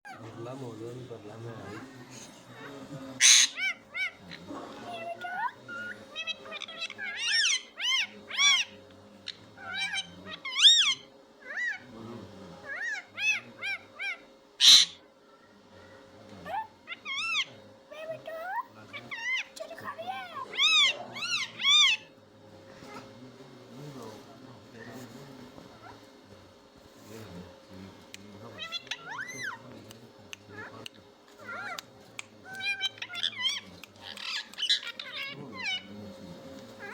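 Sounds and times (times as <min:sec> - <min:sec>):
parrot screech: 0:03.2 - 0:04.2, 0:05.7 - 0:08.8, 0:09.6 - 0:11.8, 0:12.6 - 0:15.0, 0:20.4 - 0:22.1, 0:28.6 - 0:29.6, 0:32.5 - 0:35.9
parrot whistling calls: 0:12.7 - 0:15.0
parrot making meow-like calls: 0:20.2 - 0:22.1, 0:28.6 - 0:29.6, 0:31.4 - 0:31.8, 0:32.4 - 0:35.9.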